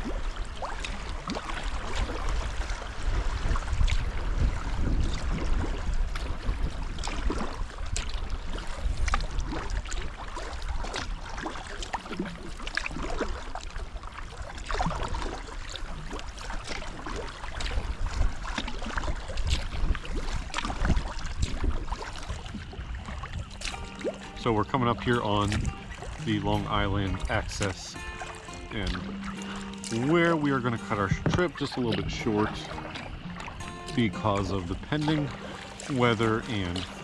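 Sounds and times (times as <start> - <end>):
moving water: 0.0 - 37.0
paddle blades splashing: 0.0 - 37.0
sharp clicks and drips: 7.0 - 13.7, 18.4 - 37.0.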